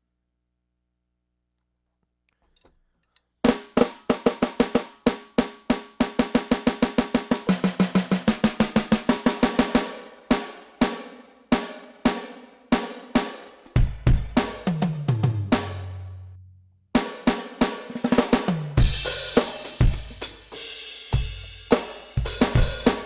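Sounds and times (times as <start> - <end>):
electronic drum kit playing: 6.7 - 10.5, 13.7 - 16.1, 18.0 - 23.0.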